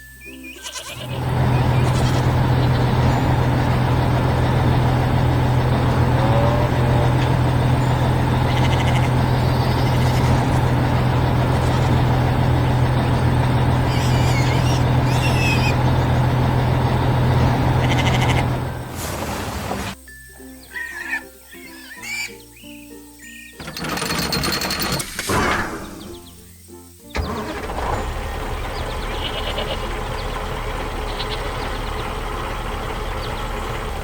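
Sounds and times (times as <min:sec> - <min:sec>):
high chirps: 0:00.2 - 0:18.8
harvester engine droning: 0:00.9 - 0:20.0, 0:23.6 - 0:26.5, 0:27.1 - 0:34.0.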